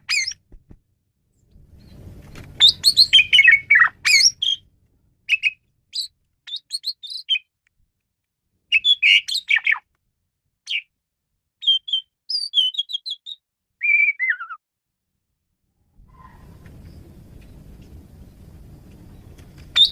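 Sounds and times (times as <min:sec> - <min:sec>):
starling singing: 0:00.0 - 0:00.4, 0:02.6 - 0:04.7, 0:05.3 - 0:07.4, 0:08.7 - 0:09.8, 0:11.6 - 0:14.6.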